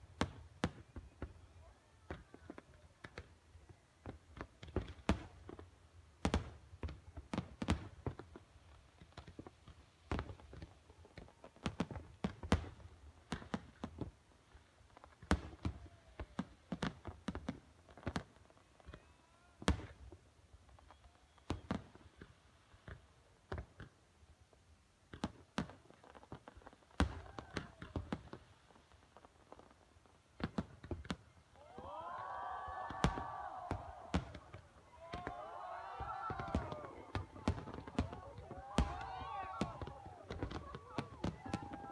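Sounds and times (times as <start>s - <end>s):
fireworks bangs and pops: 0.0s - 41.9s
crowd oohing: 31.5s - 41.9s
deep firework booms: 32.8s - 41.9s.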